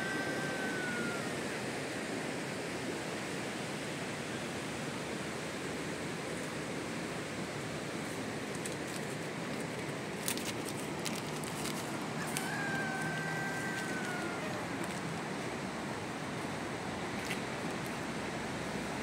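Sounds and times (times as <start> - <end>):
high drawn-out call: 0.0 - 1.6, 12.2 - 15.2
rain hissing: 10.9 - 16.6.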